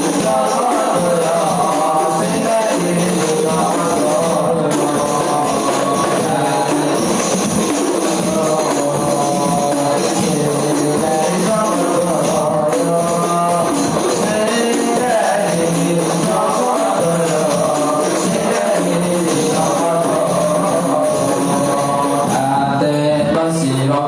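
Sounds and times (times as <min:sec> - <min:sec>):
frame drums playing rhythm: 0:00.0 - 0:23.9
people singing: 0:00.0 - 0:24.0.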